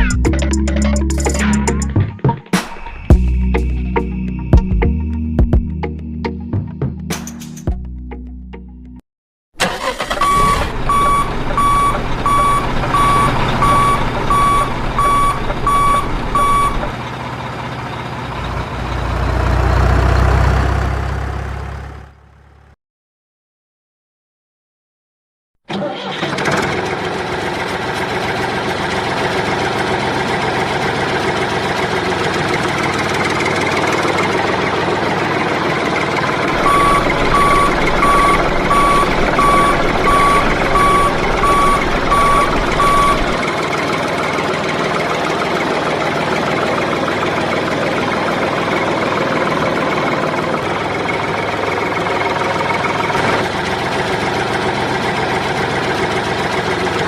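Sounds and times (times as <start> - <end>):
tractor engine running: 9.6 - 22.8, 25.7 - 57.0
reversing alarm beeping: 9.8 - 17.0, 36.6 - 43.4.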